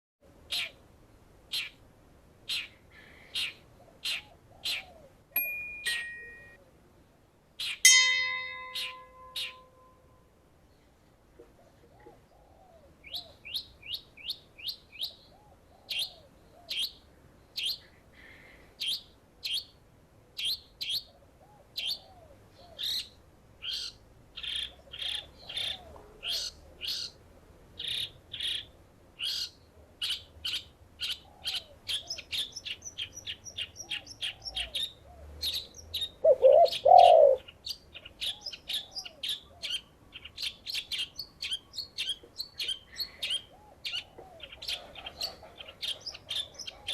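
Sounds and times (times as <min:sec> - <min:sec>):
songbird chirping: 0:02.5 - 0:19.8, 0:20.4 - 0:46.9
dove cooing: 0:36.2 - 0:37.4, 0:43.5 - 0:46.9.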